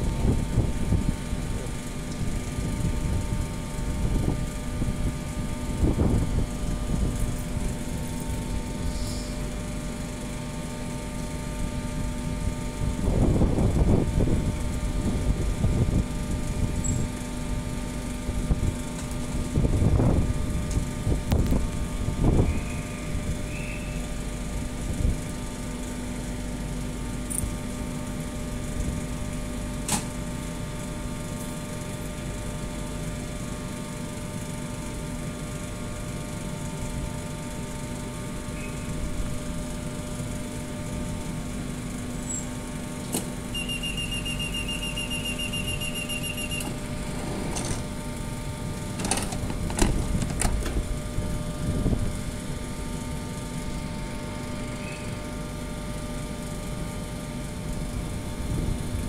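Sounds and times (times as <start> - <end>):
train humming: 43.0 - 53.0
door warning beeps: 43.5 - 46.9
train doors thumping shut: 46.5 - 47.9, 48.9 - 50.8.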